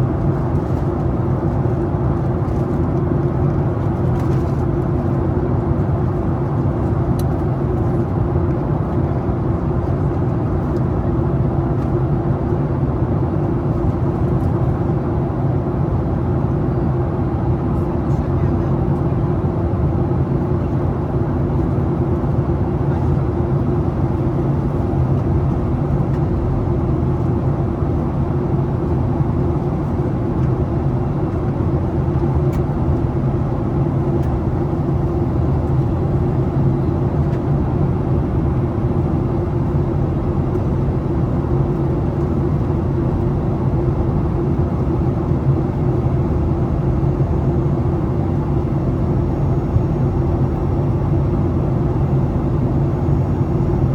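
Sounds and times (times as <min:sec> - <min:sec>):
jet engines and rushing air in cabin: 0:00.0 - 0:53.9
low hum: 0:48.6 - 0:53.9.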